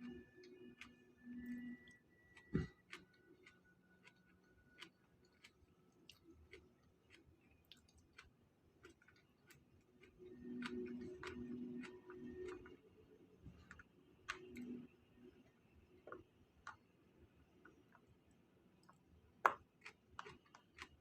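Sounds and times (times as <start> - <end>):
eating sounds: 2.4 - 12.8.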